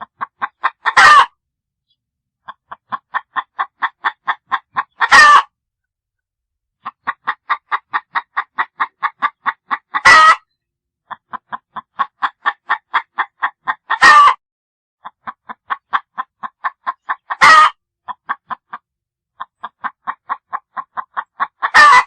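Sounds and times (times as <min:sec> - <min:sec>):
chicken clucking: 0:00.0 - 0:01.4, 0:02.4 - 0:05.5, 0:06.8 - 0:14.4, 0:15.0 - 0:22.0
chicken squawk: 0:00.1 - 0:01.4, 0:02.5 - 0:05.5, 0:06.8 - 0:10.5, 0:11.1 - 0:14.4, 0:15.0 - 0:18.8, 0:19.4 - 0:22.0.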